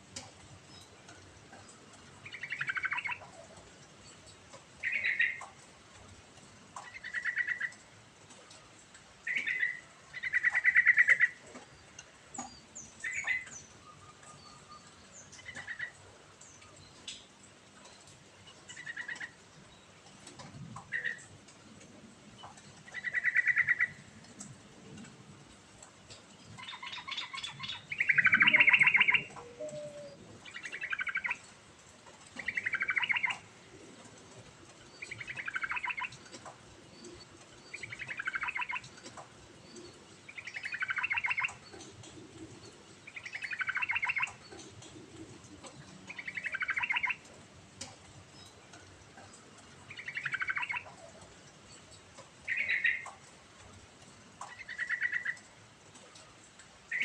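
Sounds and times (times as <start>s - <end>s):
bird singing chattering phrases: 4.8s - 5.4s, 26.5s - 31.4s, 32.4s - 33.4s, 42.6s - 44.8s, 45.6s - 47.2s, 49.2s - 51.0s, 52.4s - 53.1s.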